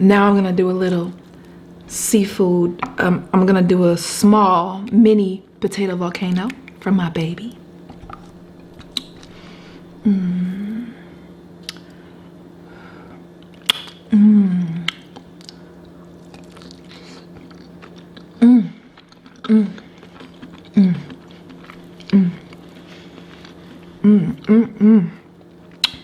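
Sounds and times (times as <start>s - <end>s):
steady low hum: 0.0s - 26.0s
closed-mouth hums of enjoyment: 8.0s - 17.6s, 18.2s - 26.0s
chewing: 14.9s - 24.5s.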